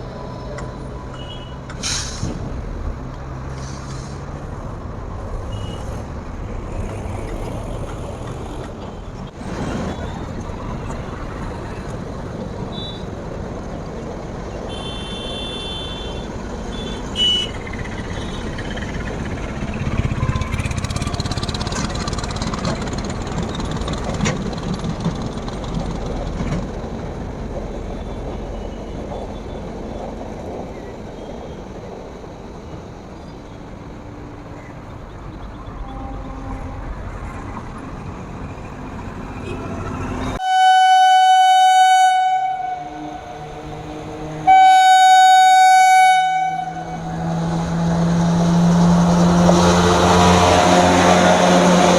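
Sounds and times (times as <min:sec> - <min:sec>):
loud train rumble: 0:00.0 - 0:51.9
steady vehicle noise: 0:00.0 - 0:51.9.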